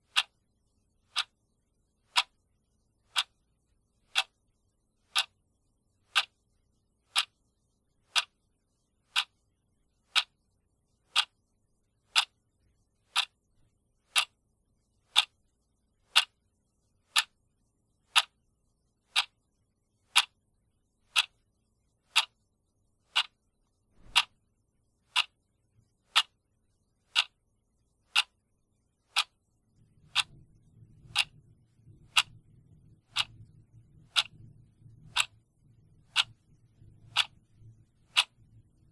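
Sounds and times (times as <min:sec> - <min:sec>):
clock ticking: 0:00.0 - 0:00.4, 0:01.0 - 0:01.4, 0:02.0 - 0:02.4, 0:03.0 - 0:03.4, 0:04.0 - 0:04.4, 0:05.0 - 0:05.4, 0:06.0 - 0:06.4, 0:07.0 - 0:07.4, 0:08.0 - 0:08.4, 0:09.0 - 0:09.4, 0:10.0 - 0:10.5, 0:11.1 - 0:11.4, 0:12.0 - 0:12.4, 0:13.0 - 0:13.4, 0:14.1 - 0:14.4, 0:15.1 - 0:15.4, 0:16.0 - 0:16.4, 0:17.1 - 0:17.4, 0:18.0 - 0:18.4, 0:19.0 - 0:19.5, 0:20.1 - 0:20.4, 0:21.1 - 0:24.4, 0:25.1 - 0:25.5, 0:26.1 - 0:26.4, 0:27.1 - 0:27.5, 0:28.1 - 0:28.4, 0:29.1 - 0:38.9
faint low hum: 0:00.0 - 0:38.9.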